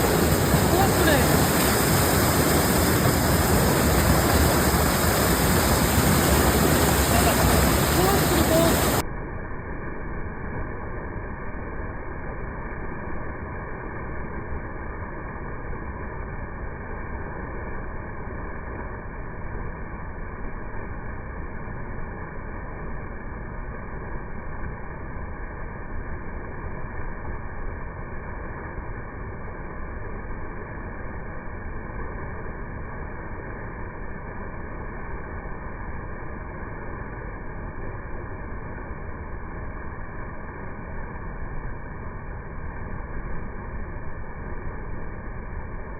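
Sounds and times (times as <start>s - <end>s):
waterfall roaring: 0.0s - 9.0s.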